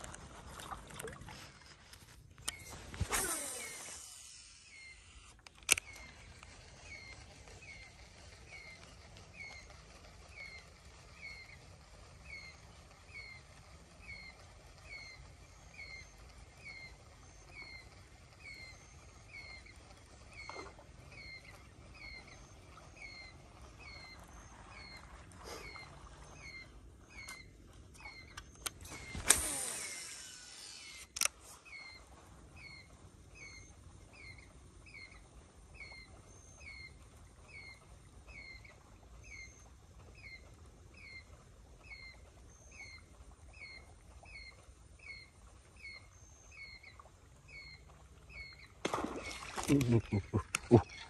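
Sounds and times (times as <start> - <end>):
animal falling chirps: 2.5 - 5.1
sharp click: 30.8 - 31.4.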